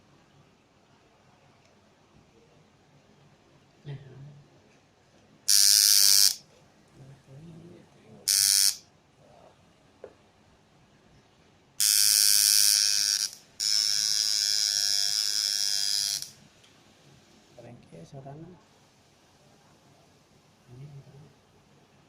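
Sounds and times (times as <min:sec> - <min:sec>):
tattoo machine buzzing: 0:05.5 - 0:06.4, 0:08.3 - 0:08.9, 0:11.8 - 0:16.4.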